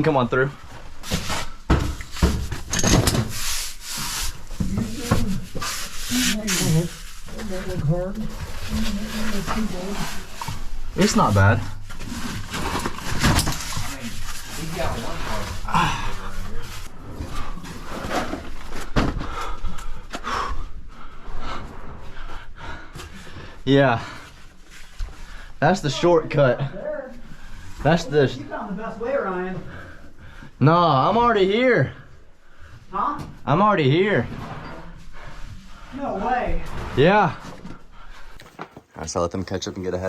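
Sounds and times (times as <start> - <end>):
person breathing hard: 19.2 - 25.6.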